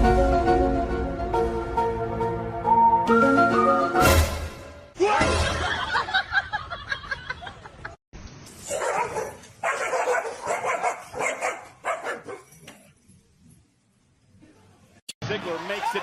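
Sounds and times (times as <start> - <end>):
dog barking: 8.7 - 12.5.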